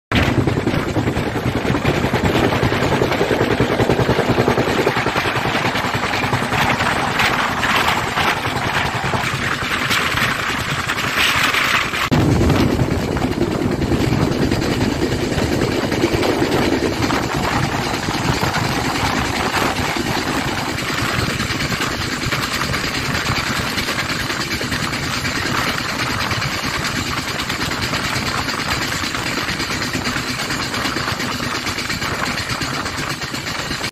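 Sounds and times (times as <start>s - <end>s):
rushing air: 0.1s - 23.1s
train wheels clattering on rails: 0.2s - 33.9s.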